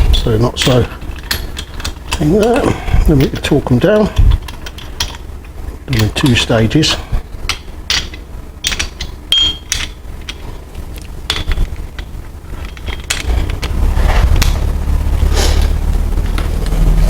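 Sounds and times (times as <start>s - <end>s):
low rumble: 12.5s - 17.0s.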